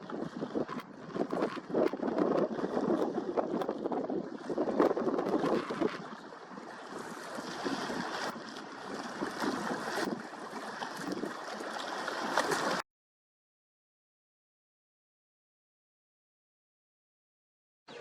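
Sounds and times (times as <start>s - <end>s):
rushing water: 0.0s - 12.8s
wind: 0.0s - 12.8s.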